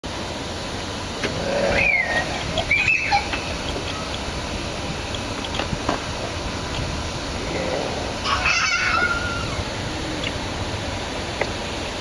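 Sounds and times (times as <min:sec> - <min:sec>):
steady background hum: 0:00.0 - 0:12.0
gliding bird calls: 0:01.3 - 0:05.7, 0:06.6 - 0:10.4.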